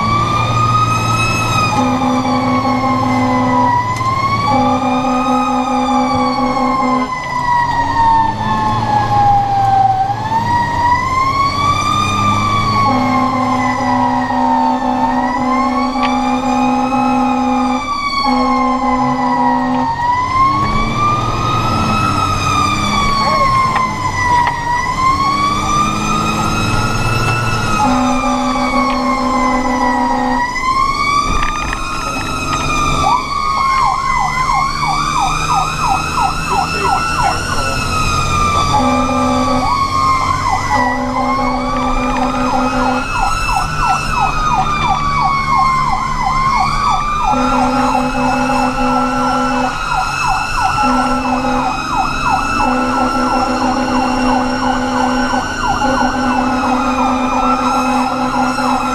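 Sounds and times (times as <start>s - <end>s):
fast sweeping siren tone: 0.0s - 58.9s
fire engine siren wailing: 0.0s - 58.9s
air horn blasts: 1.7s - 3.8s, 4.5s - 7.3s, 12.8s - 20.0s, 26.4s - 30.6s, 38.5s - 40.0s, 40.6s - 43.2s, 47.3s - 49.8s, 50.8s - 51.9s, 52.6s - 58.9s.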